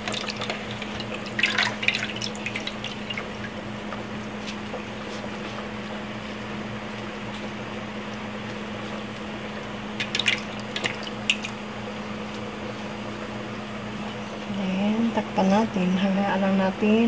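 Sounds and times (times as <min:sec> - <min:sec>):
broth sloshing in a pot: 0:00.0 - 0:14.6
steady low hum: 0:00.0 - 0:17.0.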